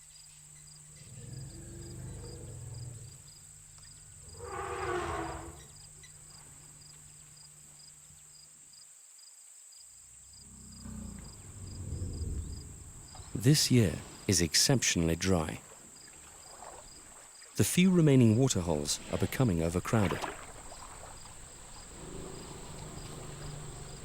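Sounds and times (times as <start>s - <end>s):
crickets and insects trilling: 0.0s - 24.0s
low steady hum: 18.4s - 24.0s.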